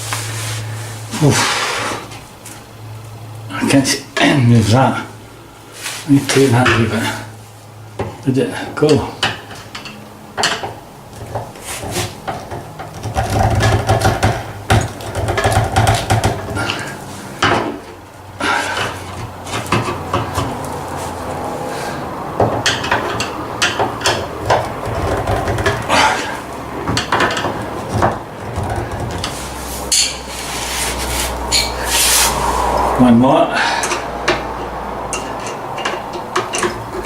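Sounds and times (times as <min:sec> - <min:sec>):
steady low hum: 0:00.0 - 0:37.0
hand tools and timber knocking: 0:08.0 - 0:33.0, 0:33.6 - 0:37.0.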